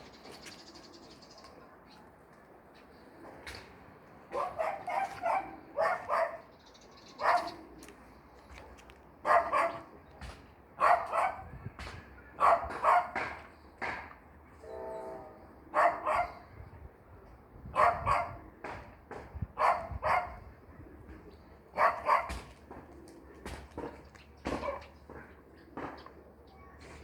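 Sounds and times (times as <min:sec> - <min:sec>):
dog barking: 0:04.3 - 0:06.5, 0:07.2 - 0:07.6, 0:09.2 - 0:09.9, 0:10.8 - 0:11.5, 0:12.4 - 0:13.3, 0:15.7 - 0:16.4, 0:17.8 - 0:18.4, 0:19.6 - 0:20.4, 0:21.8 - 0:22.5.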